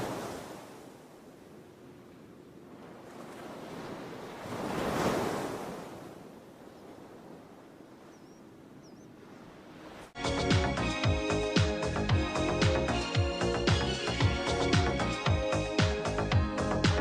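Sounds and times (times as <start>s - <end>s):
ocean wave breaking: 0.0s - 11.8s.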